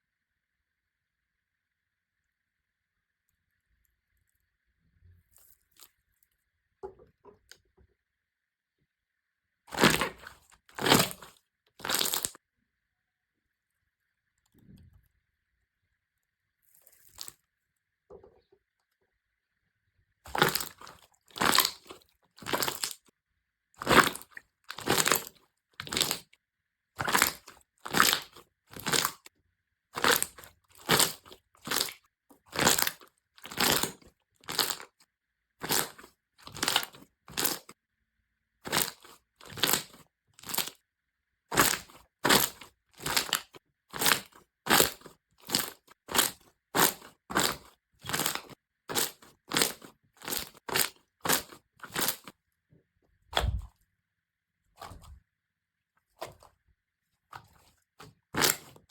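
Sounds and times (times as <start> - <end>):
slime squished by hand: 9.7 - 12.4, 16.7 - 17.4, 20.3 - 23.1, 23.8 - 26.4, 27.0 - 29.3, 30.0 - 35.0, 35.6 - 37.7, 38.6 - 40.8, 41.5 - 52.4, 53.3 - 53.8, 54.7 - 55.2, 56.0 - 56.6, 57.2 - 58.9.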